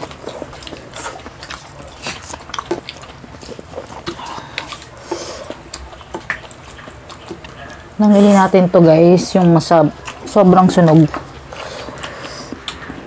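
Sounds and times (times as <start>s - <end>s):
wet mouth clicks and smacks: 0.0s - 7.8s
people chewing food: 0.0s - 13.0s.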